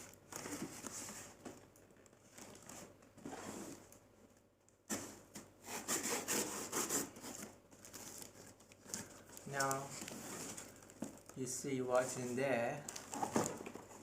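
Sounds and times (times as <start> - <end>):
knife sawing through cardboard: 5.6 - 7.2.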